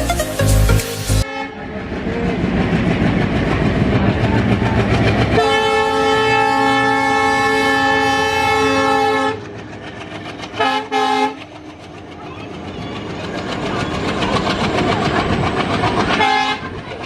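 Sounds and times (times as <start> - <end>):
train running noise: 0.0 - 17.0
locomotive air horn: 1.1 - 1.6, 5.4 - 9.4, 10.6 - 11.4, 16.2 - 16.7.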